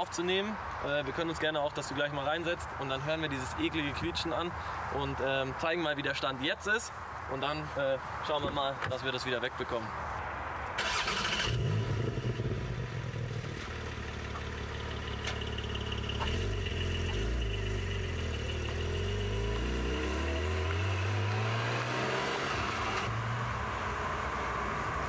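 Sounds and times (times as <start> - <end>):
car engine revving: 14.6 - 23.3.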